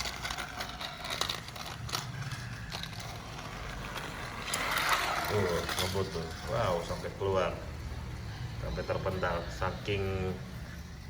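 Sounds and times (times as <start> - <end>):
clicks and clatter of wheels on track: 0.0 - 7.1
toy train motor whir: 0.0 - 11.0.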